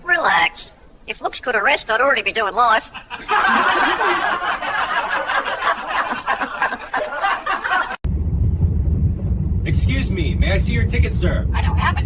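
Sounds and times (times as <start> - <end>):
people laughing: 2.9 - 8.0, 11.6 - 12.0.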